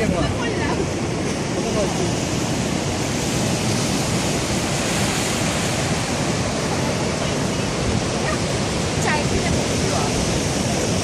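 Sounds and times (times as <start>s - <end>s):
ocean surf on rocky shore: 0.0s - 11.0s.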